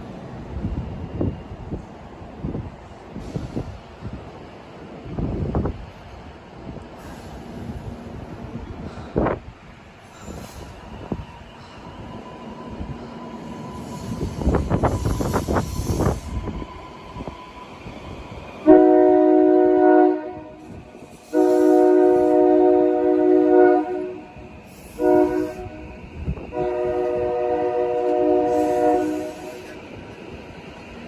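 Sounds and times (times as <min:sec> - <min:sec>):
train wheels clicking on rails: 0:00.0 - 0:18.8, 0:20.5 - 0:22.6, 0:24.2 - 0:31.0
train horn blasts: 0:18.6 - 0:29.7.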